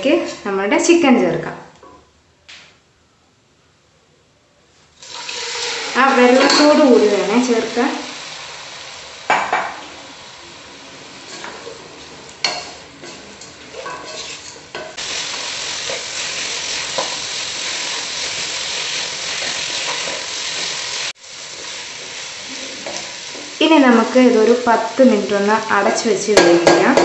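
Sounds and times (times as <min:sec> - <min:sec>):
food sizzling in pan: 0:05.0 - 0:27.0
spatula scraping pan: 0:11.1 - 0:23.5.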